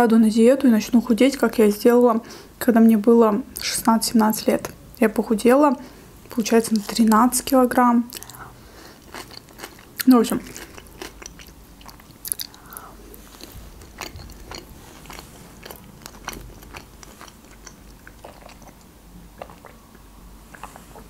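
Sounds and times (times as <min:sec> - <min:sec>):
crunchy chewing: 0:06.6 - 0:19.8, 0:20.5 - 0:21.0.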